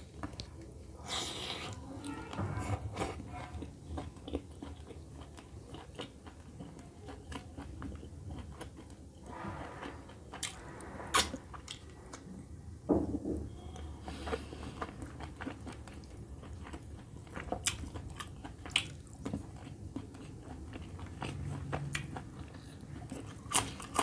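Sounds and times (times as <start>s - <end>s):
chewing with wet mouth smacks: 2.9s - 9.1s, 14.0s - 24.0s.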